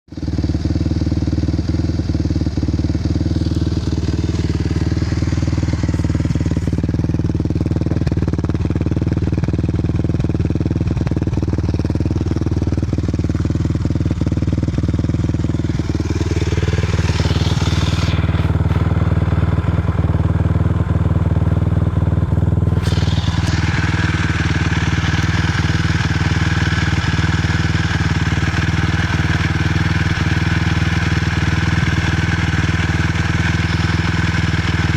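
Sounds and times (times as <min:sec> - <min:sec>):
quad engine idling: 0:00.1 - 0:34.9
sharp engine ticks: 0:22.7 - 0:34.9.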